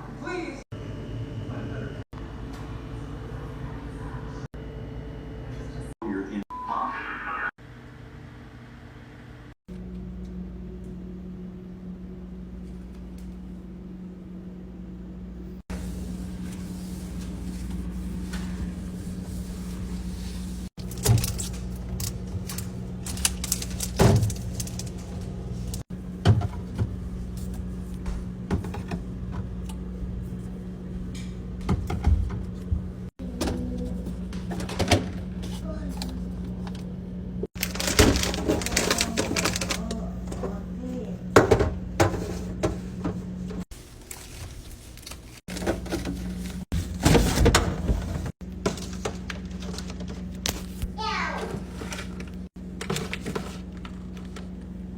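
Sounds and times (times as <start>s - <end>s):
steady low hum: 7.6s - 51.0s
containers and packaging clattering: 20.8s - 27.5s, 37.6s - 40.6s, 43.8s - 50.8s, 51.4s - 54.5s.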